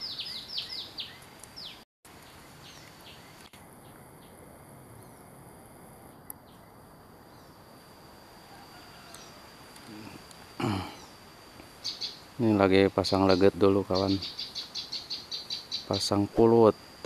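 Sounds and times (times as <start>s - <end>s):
small bird whistling: 0.0s - 1.8s, 11.8s - 12.2s, 14.0s - 16.0s
thin steady high tone: 6.3s - 17.0s.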